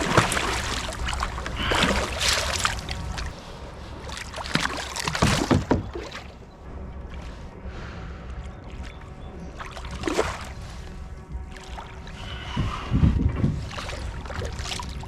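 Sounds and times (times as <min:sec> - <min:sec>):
water splashing: 0:00.0 - 0:15.0
sharp knocks: 0:05.1 - 0:06.1.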